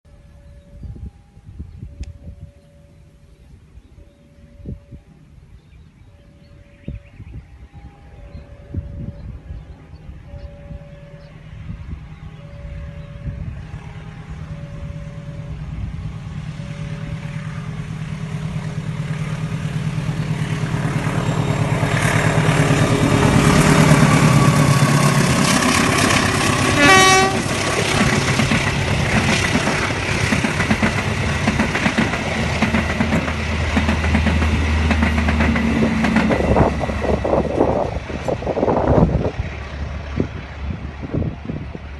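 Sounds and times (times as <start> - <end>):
train engine and wheels: 0.0 - 41.9
carriages rumbling and wheel clatter: 0.1 - 41.9
train horn blast: 23.5 - 28.0.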